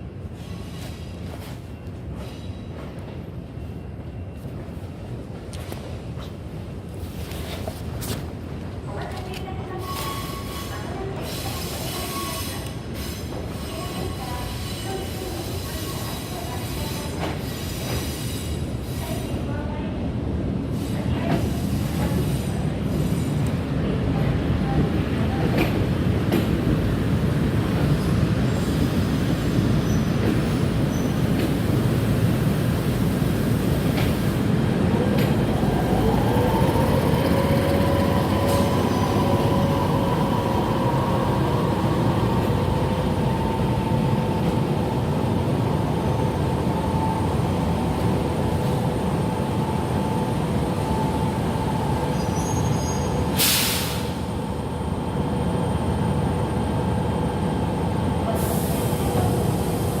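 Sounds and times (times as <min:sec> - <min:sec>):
electric train rumble and hum: 0:00.0 - 1:00.0
burst of hiss: 0:53.3 - 0:54.2.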